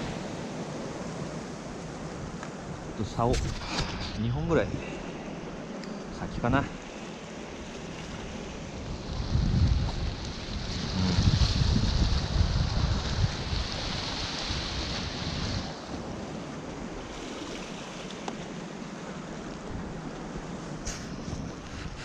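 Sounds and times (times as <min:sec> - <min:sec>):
wind gusting on microphone: 0:00.0 - 0:06.9, 0:07.6 - 0:17.8, 0:19.3 - 0:22.0
waves washing against rocks: 0:06.6 - 0:22.0.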